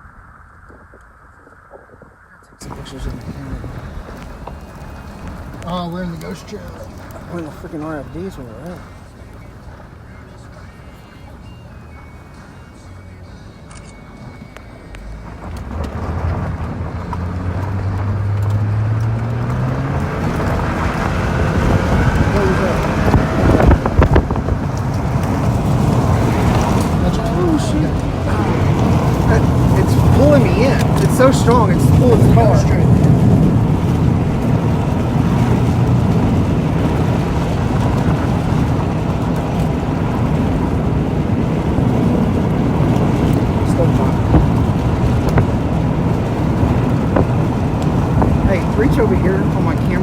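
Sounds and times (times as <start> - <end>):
road noise: 0.0 - 50.0
car engine pulling: 0.7 - 50.0
wind rushing: 15.7 - 50.0.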